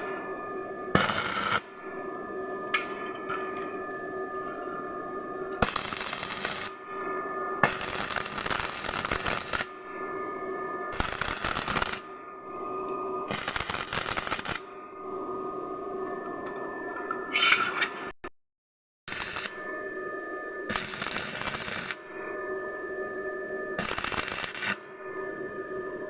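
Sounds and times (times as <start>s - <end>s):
machine hum: 0.0s - 17.4s.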